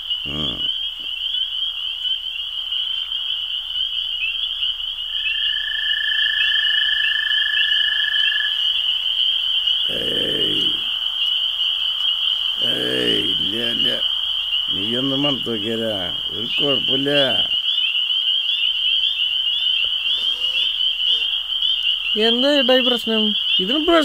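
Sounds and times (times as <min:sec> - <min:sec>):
frogs and insects trilling: 0:00.0 - 0:24.0
person's voice: 0:09.9 - 0:10.9, 0:12.6 - 0:14.0, 0:14.7 - 0:17.5.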